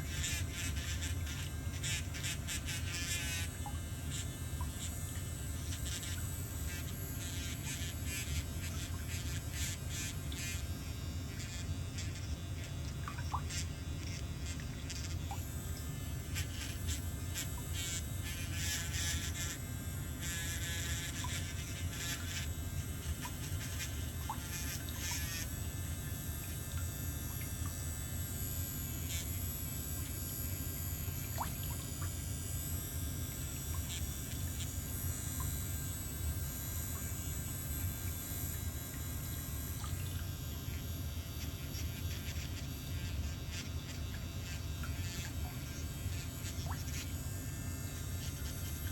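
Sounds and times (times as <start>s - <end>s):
drill filing toenail: 0.0s - 25.6s, 28.9s - 31.2s, 41.4s - 48.9s
electric nail drill buzzing: 0.0s - 48.9s.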